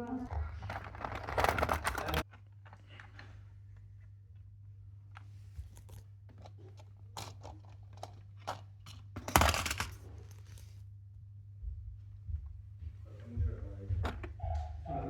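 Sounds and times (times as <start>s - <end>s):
steady low hum: 0.0s - 15.0s
rustling clatter: 0.3s - 3.4s, 5.4s - 10.8s.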